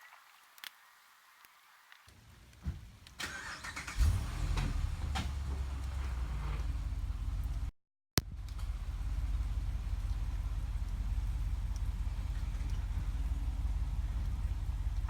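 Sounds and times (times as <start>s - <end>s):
vehicle engine starting and idling: 3.2s - 15.0s.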